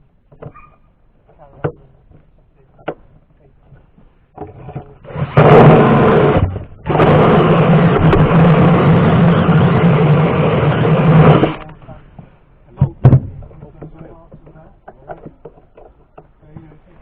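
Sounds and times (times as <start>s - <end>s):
power drill grinding sheet metal: 5.0s - 11.7s.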